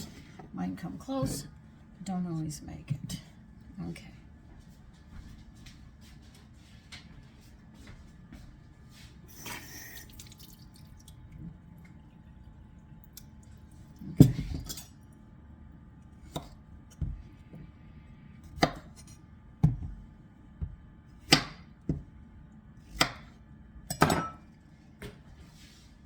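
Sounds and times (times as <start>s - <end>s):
knife chopping on cutting board: 16.3s - 17.2s, 18.5s - 20.0s, 20.6s - 22.0s, 22.9s - 23.3s.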